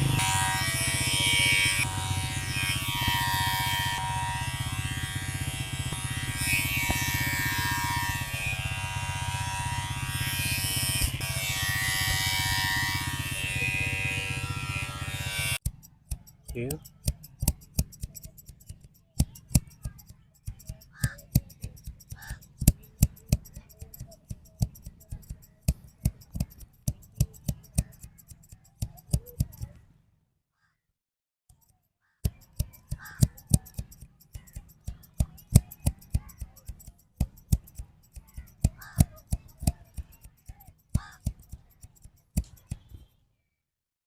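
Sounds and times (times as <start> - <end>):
scissors snipping hair: 15.6 - 29.8, 31.5 - 43.0.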